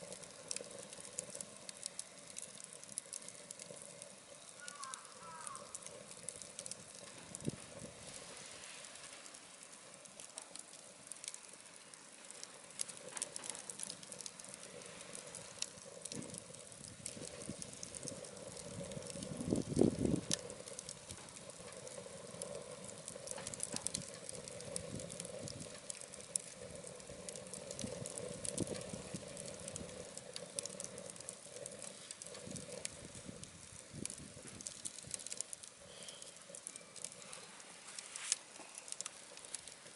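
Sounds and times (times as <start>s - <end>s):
low flame rush: 0.0s - 39.9s
wood fire crackling and popping: 0.0s - 39.9s.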